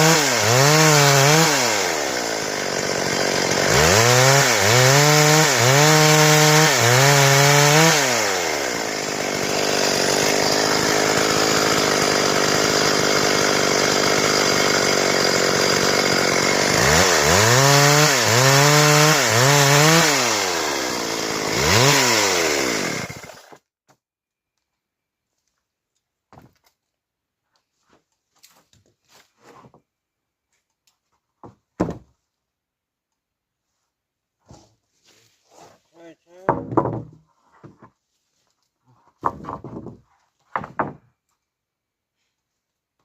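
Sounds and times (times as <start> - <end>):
chainsaw revving and cutting wood: 0.0 - 23.6.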